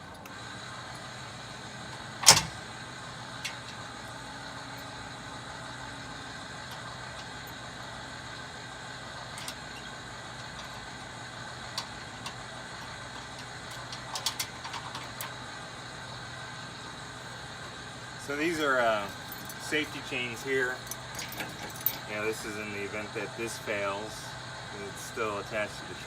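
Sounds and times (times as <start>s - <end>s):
steady low hum: 0.0s - 26.0s
metal clunk: 2.2s - 2.6s
light metallic clinks: 18.5s - 19.8s, 20.8s - 22.2s.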